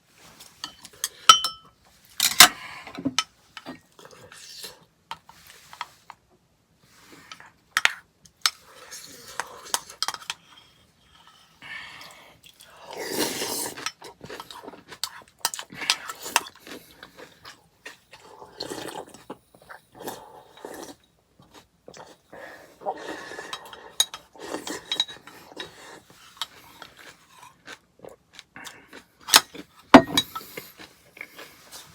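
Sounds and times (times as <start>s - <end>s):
spoon clinking against bowl: 0.6s - 1.7s
slurping: 11.9s - 17.5s, 18.1s - 21.0s, 21.9s - 28.9s
chewing: 12.0s - 31.9s.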